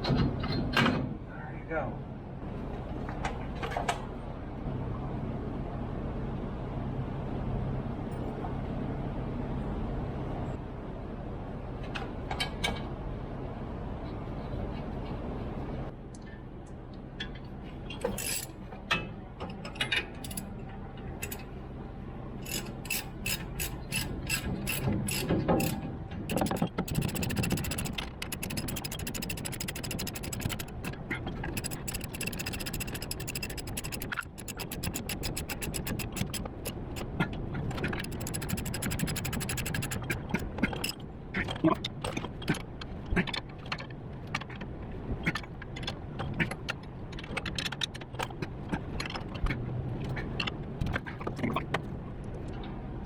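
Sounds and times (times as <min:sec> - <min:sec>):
ratchet wrench clicking: 0:22.5 - 0:31.0, 0:31.6 - 0:37.0, 0:37.9 - 0:41.0.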